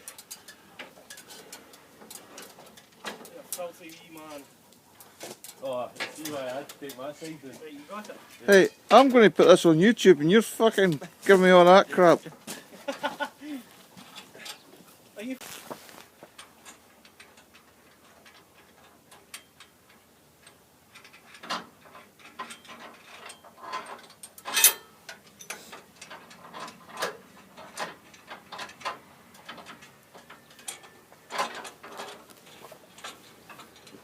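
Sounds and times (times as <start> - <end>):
metallic clicks and knocks: 16.3 - 34.0.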